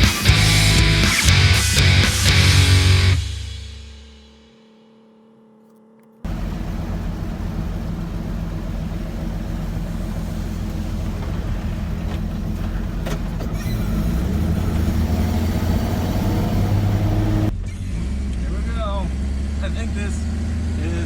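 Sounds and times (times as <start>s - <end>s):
pickup truck engine running: 6.3s - 17.5s
road noise: 6.3s - 17.5s.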